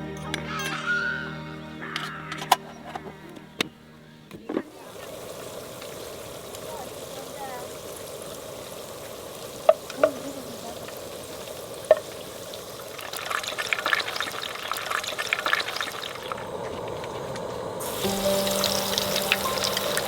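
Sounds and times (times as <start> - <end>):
sharp clinks: 0.0 - 1.2
food sizzling in a pan: 4.7 - 20.0.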